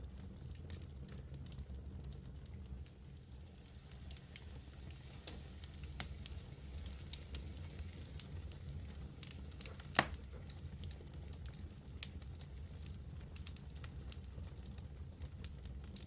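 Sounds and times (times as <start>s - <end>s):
fire crackling: 0.0s - 16.0s
fire rumbling: 0.0s - 16.0s
soft hiss: 0.0s - 16.0s
loud wood pop: 10.0s - 10.2s.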